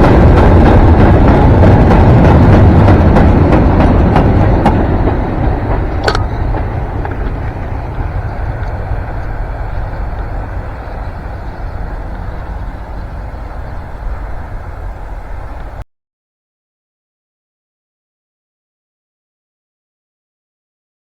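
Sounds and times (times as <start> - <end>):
train rumbling past: 0.0 - 15.8
wheels clacking over rail: 0.0 - 15.8.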